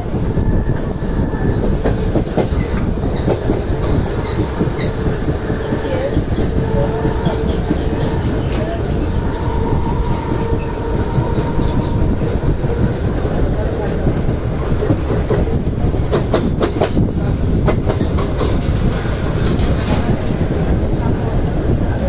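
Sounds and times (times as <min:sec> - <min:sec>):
wheels rumbling on track: 0:00.0 - 0:22.0
high wheel screech: 0:00.3 - 0:14.1.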